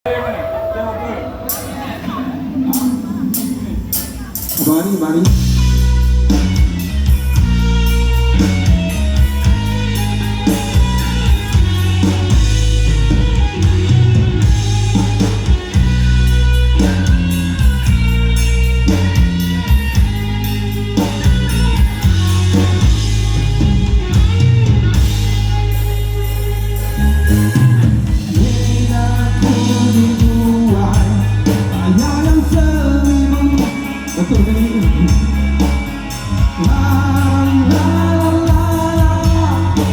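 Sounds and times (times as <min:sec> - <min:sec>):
live rock band playing: 0:00.0 - 0:39.9
person singing: 0:26.9 - 0:39.9.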